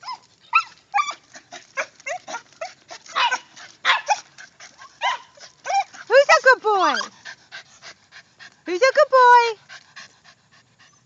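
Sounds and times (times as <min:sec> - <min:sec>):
dog whining and yipping: 0:00.0 - 0:07.2.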